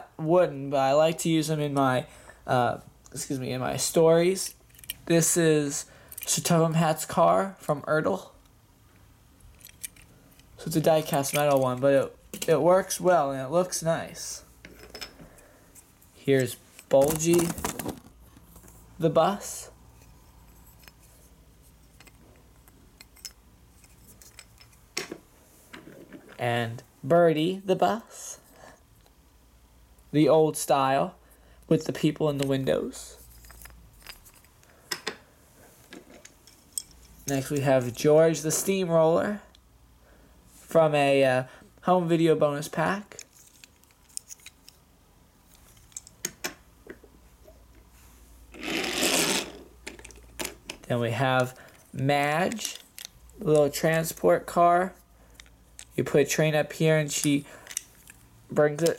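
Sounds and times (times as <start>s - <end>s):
toy scraping whirr: 48.5s - 49.7s.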